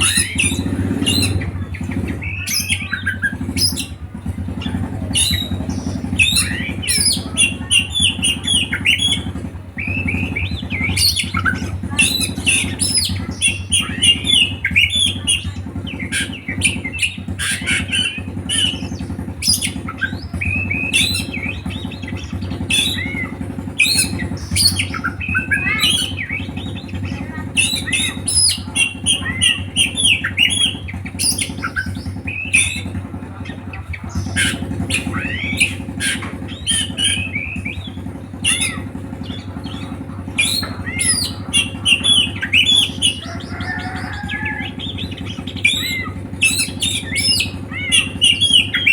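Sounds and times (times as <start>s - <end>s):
songbird singing: 0.0s - 48.9s
steady low hum: 0.0s - 48.9s.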